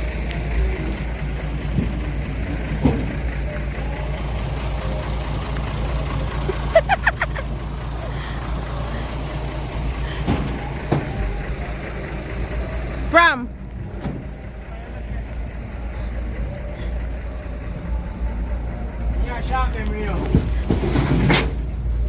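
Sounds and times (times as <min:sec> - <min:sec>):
truck engine idling: 0:00.0 - 0:22.0
loading knocks and bumps: 0:01.6 - 0:03.3.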